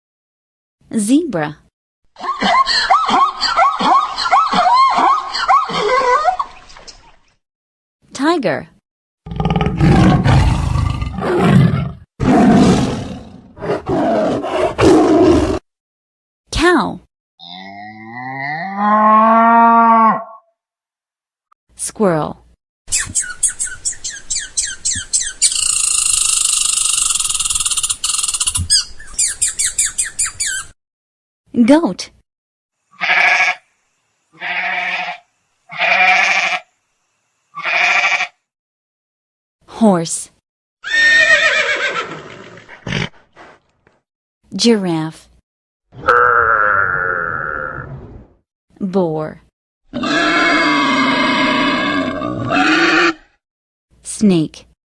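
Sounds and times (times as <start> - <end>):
tiger roaring: 9.3 - 15.6, 49.9 - 53.3
goat bleating: 33.0 - 33.6, 34.4 - 36.6, 37.6 - 38.3.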